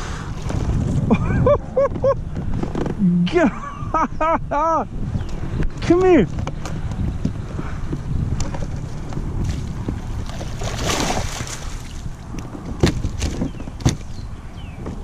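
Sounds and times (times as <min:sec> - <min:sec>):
low wind rumble: 0:00.0 - 0:15.0
water splashing: 0:08.8 - 0:14.1.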